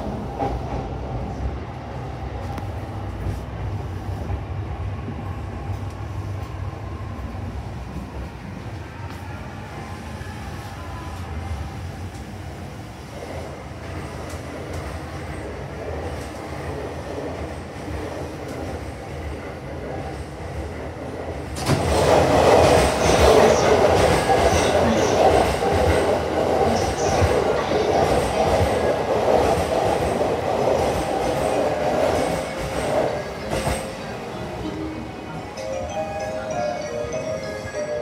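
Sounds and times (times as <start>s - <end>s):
train interior rumble: 0.0s - 38.0s
train running noise: 0.0s - 38.0s
train doors opening: 21.4s - 38.0s.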